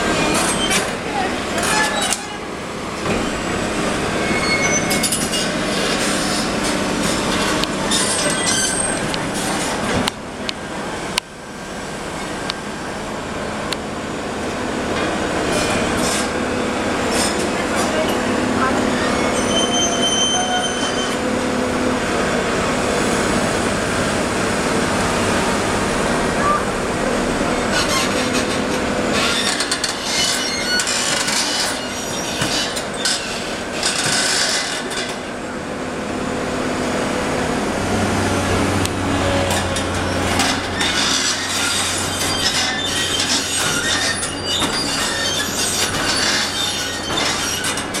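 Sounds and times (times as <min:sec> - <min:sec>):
metallic scraping and squealing: 0:00.0 - 0:09.9, 0:15.4 - 0:21.4, 0:26.4 - 0:35.4, 0:39.1 - 0:48.0
construction machinery engine drone: 0:00.0 - 0:48.0.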